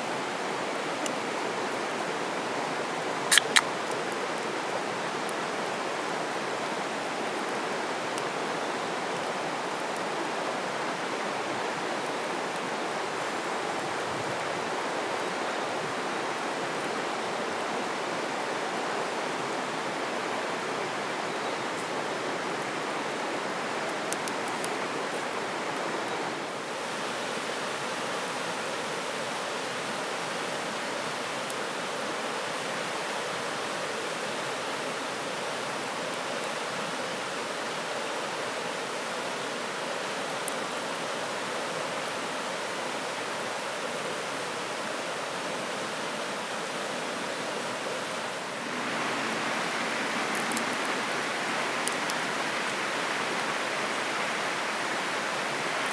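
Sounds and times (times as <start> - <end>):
flowing river water: 0.0 - 55.9
faint ticks: 3.3 - 4.2.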